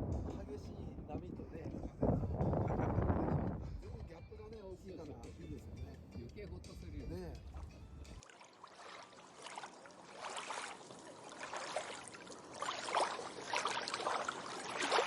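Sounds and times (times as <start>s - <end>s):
sea water splashing against hull: 7.5s - 15.0s.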